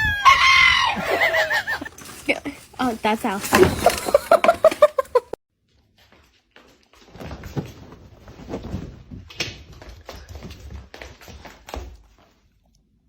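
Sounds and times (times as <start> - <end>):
rustling: 0.2 - 5.4.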